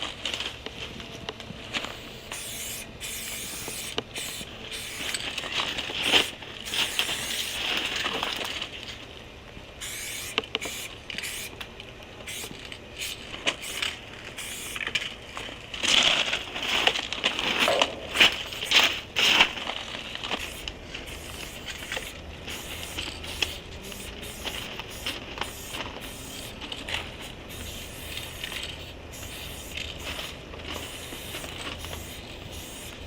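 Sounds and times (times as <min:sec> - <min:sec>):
spray paint cans hissing: 0:01.9 - 0:08.0, 0:09.8 - 0:11.6, 0:12.2 - 0:15.1, 0:17.6 - 0:19.6, 0:20.2 - 0:33.0.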